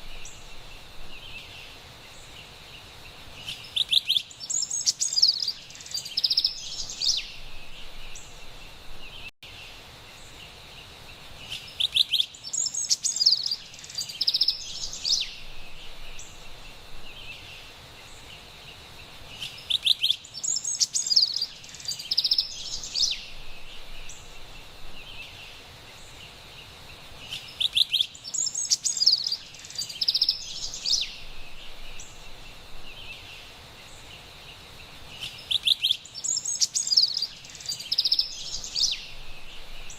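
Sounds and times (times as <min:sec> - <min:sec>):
faint hiss: 0:00.0 - 0:39.9
wren singing whistled phrases: 0:03.4 - 0:09.3, 0:11.4 - 0:18.3, 0:19.4 - 0:26.2, 0:27.2 - 0:34.1, 0:35.1 - 0:39.9.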